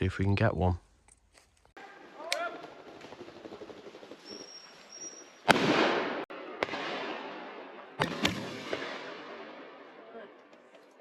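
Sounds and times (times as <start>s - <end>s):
shotgun shots: 5.4s - 9.6s.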